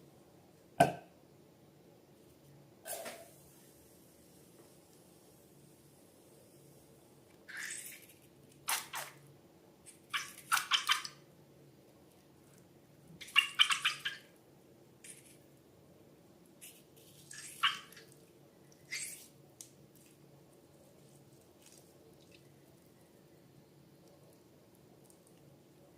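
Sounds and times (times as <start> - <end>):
slime squelching and crackling: 21.0 - 22.5.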